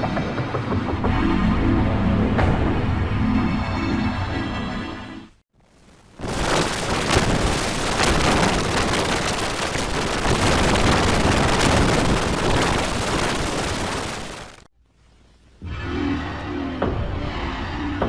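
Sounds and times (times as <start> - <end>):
heavy gunfire barrage: 6.2 - 14.7.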